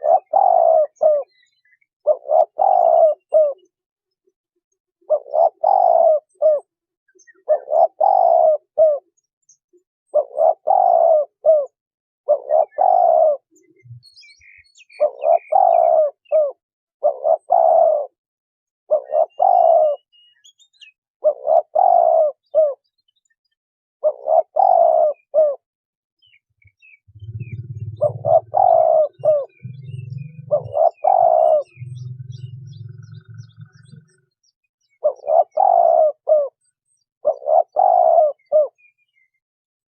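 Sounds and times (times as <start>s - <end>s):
dove cooing: 0.0s - 3.7s, 5.0s - 9.2s, 10.1s - 14.1s, 14.8s - 18.2s, 18.9s - 20.2s, 21.2s - 22.9s, 24.0s - 25.6s, 26.2s - 38.9s
low hum: 27.1s - 28.4s.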